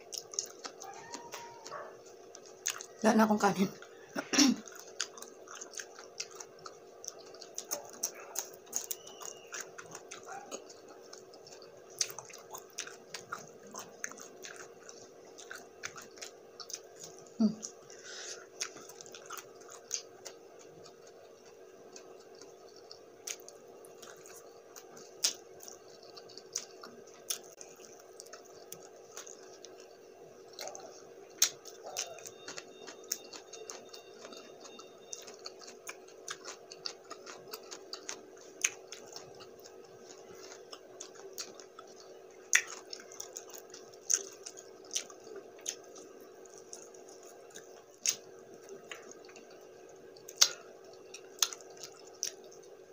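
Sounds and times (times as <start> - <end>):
person chewing and lip smacking: 0.0 - 3.1, 3.7 - 52.9
faint steady hum: 0.0 - 52.9.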